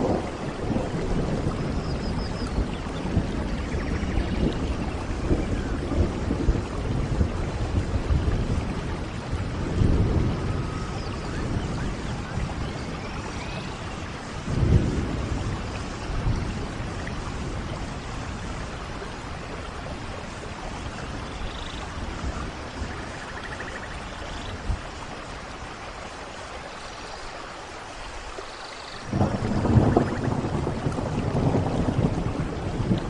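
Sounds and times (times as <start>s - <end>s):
thunder rumbling: 0.0s - 25.2s, 29.0s - 33.0s
steady rainfall: 0.0s - 33.0s.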